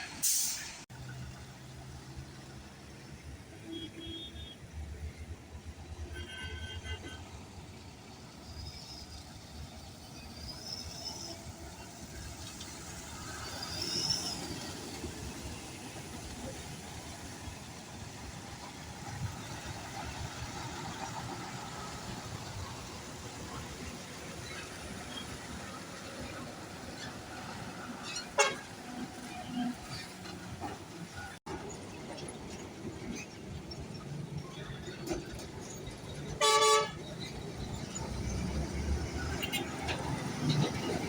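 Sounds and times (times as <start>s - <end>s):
road traffic rumble: 0.0s - 41.0s.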